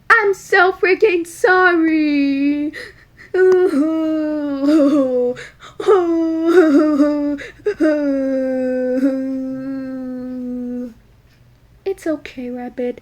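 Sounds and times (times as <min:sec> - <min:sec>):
person wailing sobs: 0:02.6 - 0:11.0.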